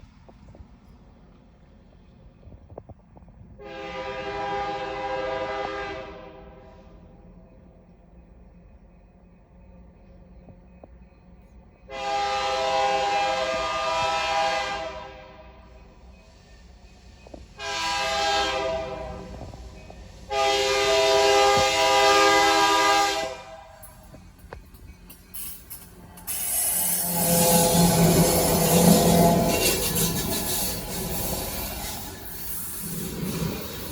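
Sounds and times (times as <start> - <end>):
locomotive air horn blasts: 3.6 - 6.8, 11.9 - 15.6, 17.6 - 19.4, 20.3 - 23.8, 26.3 - 30.9.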